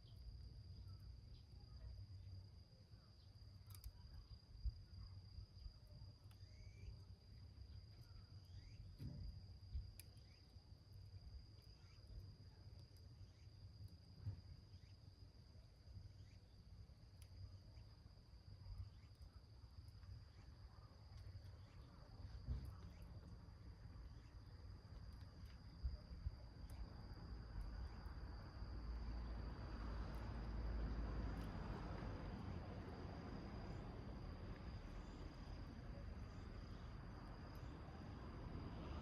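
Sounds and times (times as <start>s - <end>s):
small wood fire crackling: 0.2s - 39.0s
high-pitched insect trill: 3.0s - 9.0s, 9.8s - 12.6s, 16.0s - 16.6s, 24.1s - 30.8s, 33.0s - 39.0s.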